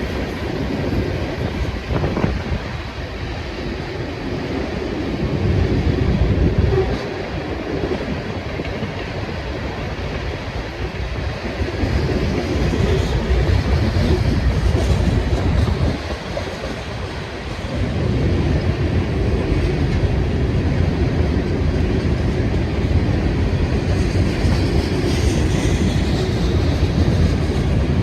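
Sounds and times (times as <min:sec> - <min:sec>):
freight train wheels on rails: 0:00.0 - 0:28.0.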